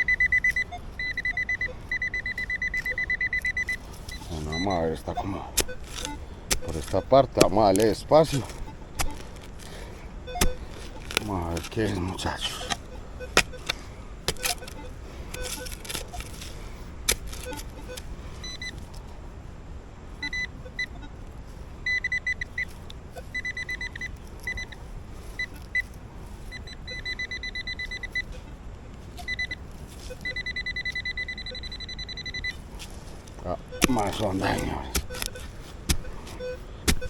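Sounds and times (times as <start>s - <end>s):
metal detector beeping: 0.0s - 19.0s, 20.2s - 21.2s, 21.8s - 37.0s
digging knocks: 2.3s - 18.1s, 32.8s - 37.0s.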